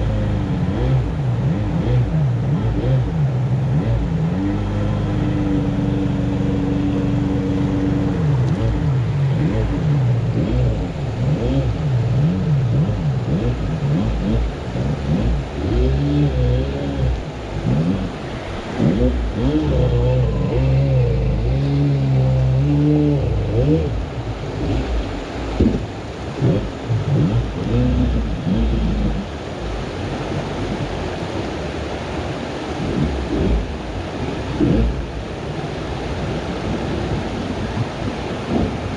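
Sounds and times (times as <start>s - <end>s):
jet boat engine revving: 0.0s - 38.9s.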